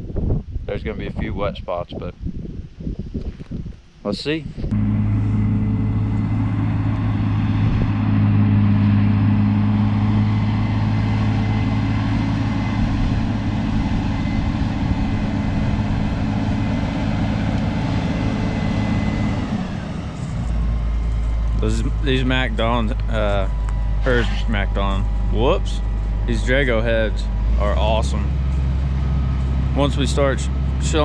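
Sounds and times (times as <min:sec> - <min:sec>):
diesel engine humming: 0:04.6 - 0:31.0
faint high whine: 0:18.9 - 0:31.0.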